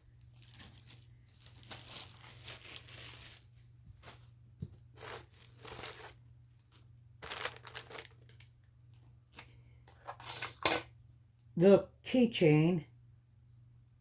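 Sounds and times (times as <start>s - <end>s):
packaging crinkling and rustling: 0.0s - 10.6s.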